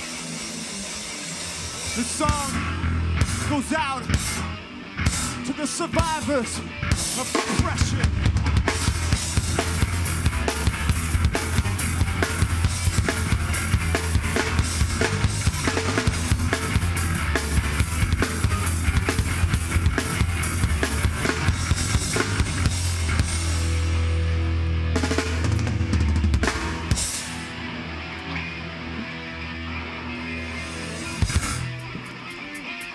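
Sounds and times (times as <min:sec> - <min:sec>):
live heavy rock band: 0:00.0 - 0:32.9
fast drum-kit hits: 0:06.9 - 0:23.9, 0:25.0 - 0:27.4, 0:31.2 - 0:31.9.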